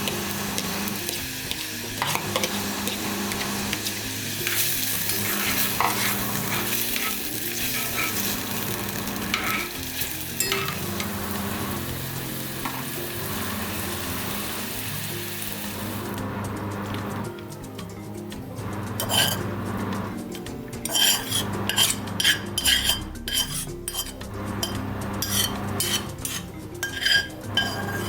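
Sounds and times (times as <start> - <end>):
cooking utensil clicks and scrapes: 0.0 - 11.4, 18.9 - 28.0
food sizzling in oil: 0.0 - 17.3, 18.6 - 28.0.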